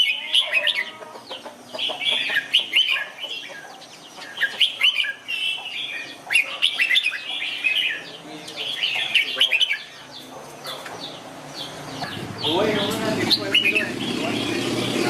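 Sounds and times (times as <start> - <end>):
bulbul singing whistled phrases: 4.2 - 10.3, 11.6 - 15.0.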